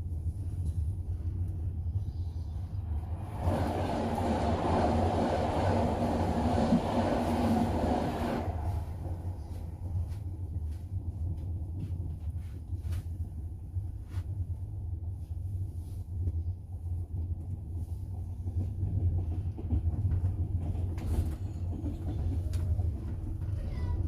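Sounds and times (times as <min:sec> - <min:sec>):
train rumble from inside carriage: 0:00.0 - 0:24.0
train wheels clacking: 0:18.4 - 0:24.0.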